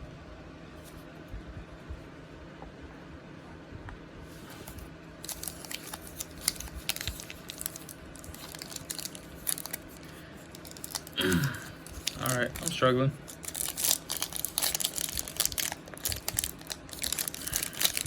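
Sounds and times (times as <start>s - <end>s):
plastic wrapper crinkling and tearing: 4.6s - 18.0s.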